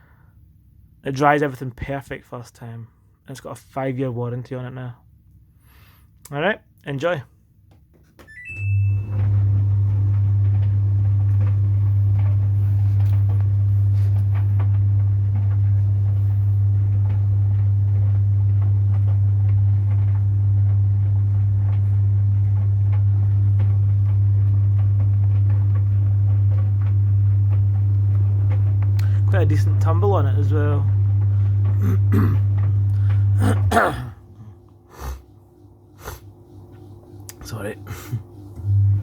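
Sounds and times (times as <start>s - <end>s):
tumble dryer humming: 8.2s - 39.0s
towels tumbling in drum: 9.2s - 34.0s.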